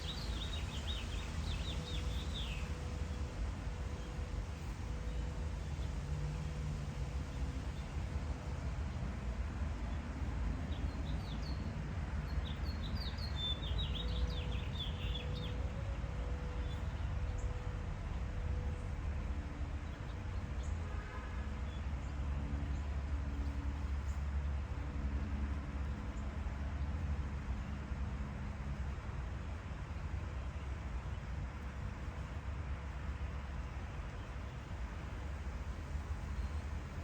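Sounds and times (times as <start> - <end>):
low outdoor rumble: 0.0 - 37.0.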